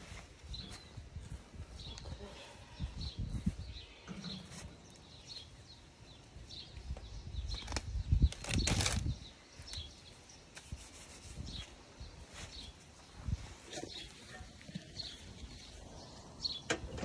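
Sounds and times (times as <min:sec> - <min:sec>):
birds chirping: 0:00.0 - 0:10.8, 0:11.4 - 0:17.0
rustling noise: 0:03.3 - 0:05.5, 0:07.4 - 0:16.0.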